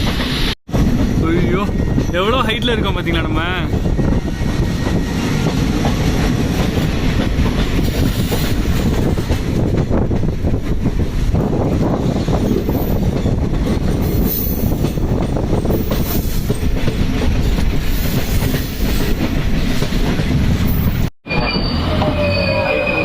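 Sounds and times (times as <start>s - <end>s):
train coaches rumbling on track: 0.0s - 23.0s
high wheel squeal: 21.2s - 23.0s.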